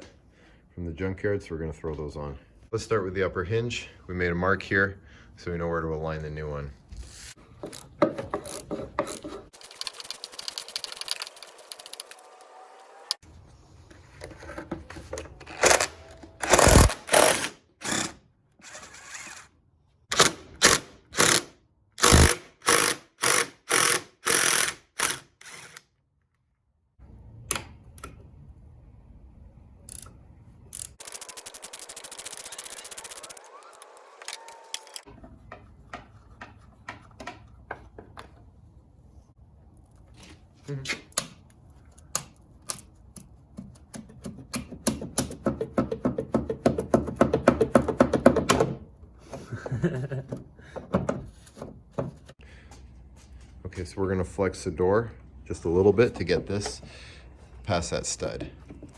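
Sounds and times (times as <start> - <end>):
hand ratchet strokes: 7.7 - 12.6, 20.2 - 25.9, 30.7 - 35.1.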